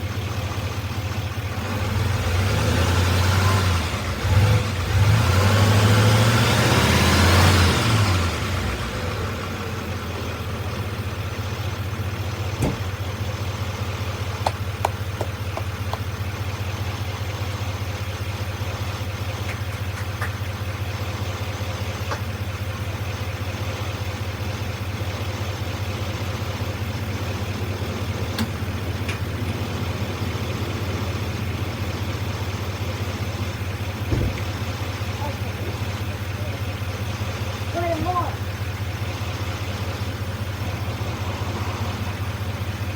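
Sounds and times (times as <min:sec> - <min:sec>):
vehicle engine revving and idling: 0:00.0 - 0:42.9.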